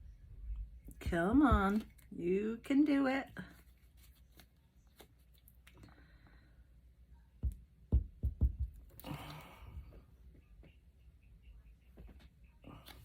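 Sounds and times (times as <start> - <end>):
breathy sigh: 9.0 - 10.0.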